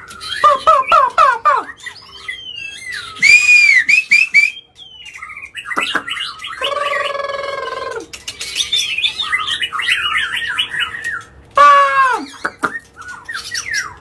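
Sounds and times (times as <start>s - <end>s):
bird singing whistles: 1.8s - 5.4s.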